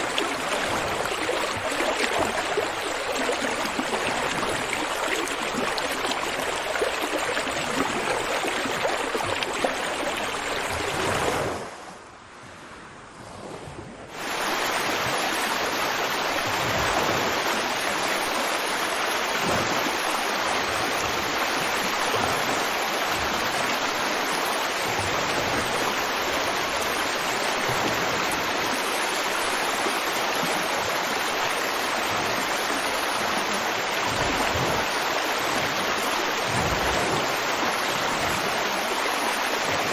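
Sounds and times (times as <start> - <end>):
river water rushing: 0.0 - 11.7, 14.1 - 39.9.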